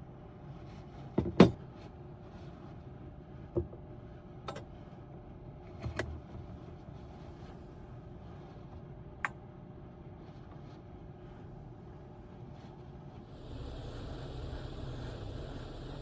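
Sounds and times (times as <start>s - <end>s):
low hum: 13.3s - 16.0s.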